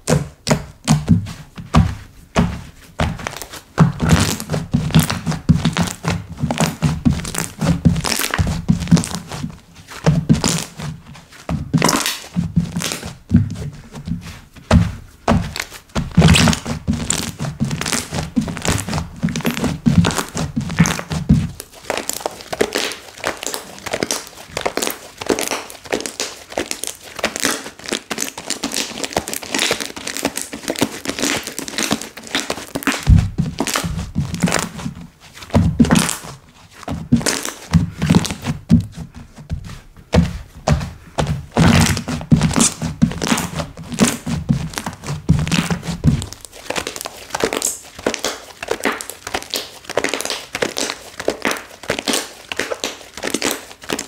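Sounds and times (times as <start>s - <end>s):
low thudding: 33.1s - 34.4s.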